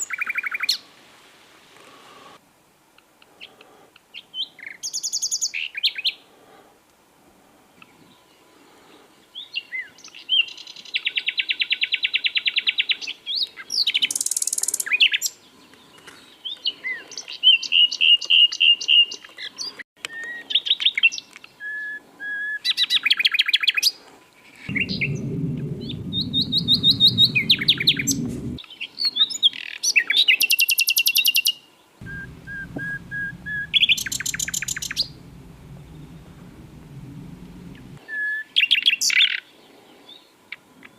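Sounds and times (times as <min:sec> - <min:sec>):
low rumble: 0:24.7 - 0:28.6, 0:32.0 - 0:38.0.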